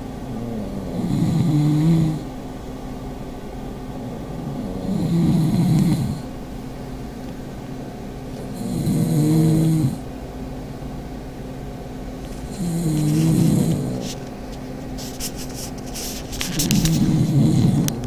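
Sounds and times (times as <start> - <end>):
dog snoring: 0.3 - 2.3, 4.0 - 6.4, 8.4 - 10.1, 12.3 - 14.2, 16.4 - 18.0.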